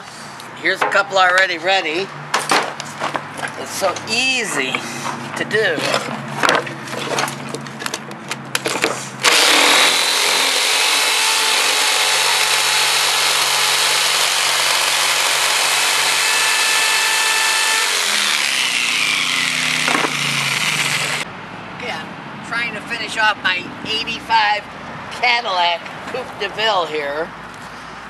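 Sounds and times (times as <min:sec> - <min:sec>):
power saw cutting plywood: 0:09.2 - 0:21.3.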